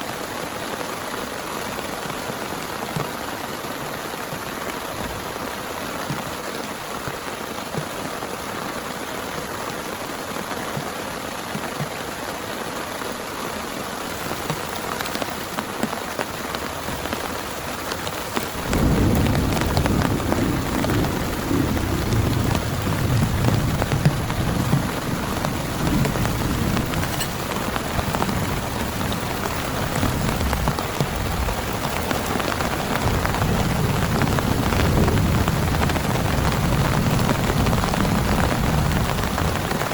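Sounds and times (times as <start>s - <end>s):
heavy rain falling: 0.0s - 39.9s
thunder rumbling: 16.6s - 39.9s.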